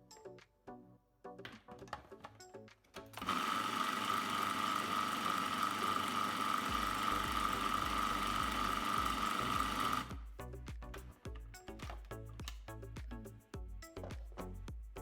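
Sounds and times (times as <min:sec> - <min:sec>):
food processor motor whining: 0:03.2 - 0:10.1.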